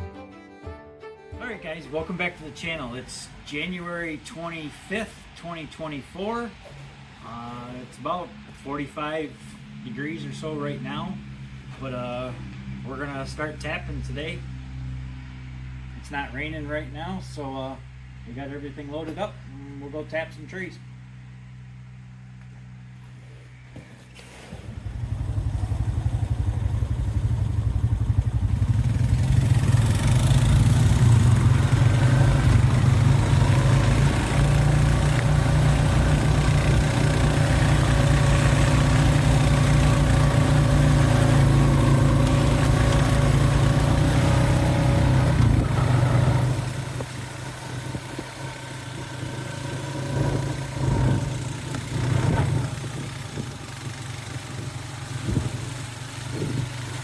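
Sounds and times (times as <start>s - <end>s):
vehicle engine running: 0.0s - 5.9s, 6.5s - 57.0s.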